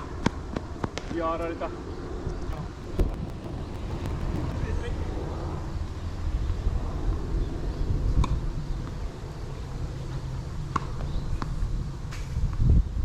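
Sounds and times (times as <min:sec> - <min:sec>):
wind buffeting microphone: 0:02.2 - 0:08.8.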